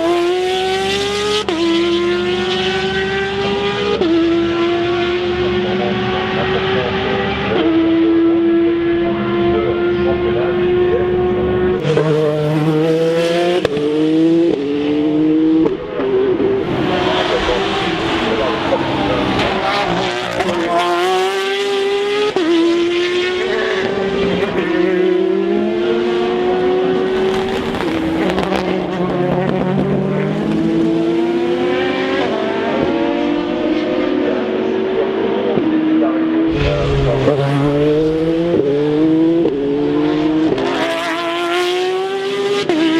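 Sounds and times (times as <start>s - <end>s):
race car engine accelerating: 0.0s - 42.9s
lower race car engine note: 36.4s - 42.3s.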